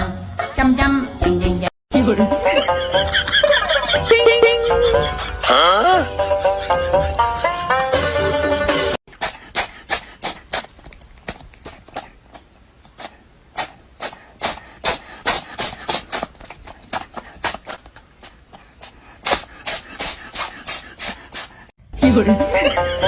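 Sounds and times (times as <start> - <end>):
music: 0.0 - 9.0, 22.0 - 23.0
dog panting: 6.2 - 8.4, 9.1 - 21.8.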